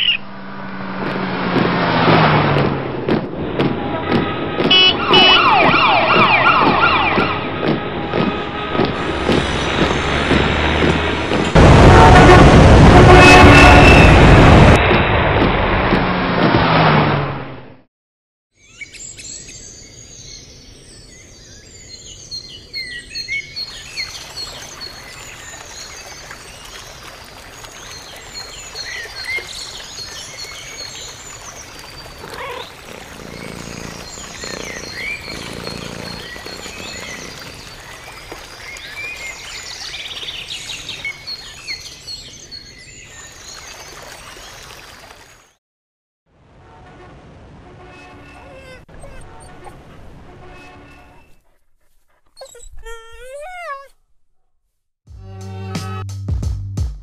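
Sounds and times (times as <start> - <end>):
lower bird calls: 27.7 - 43.2
birds chirping and singing: 27.9 - 43.6
rapid high bird trill: 31.9 - 38.0.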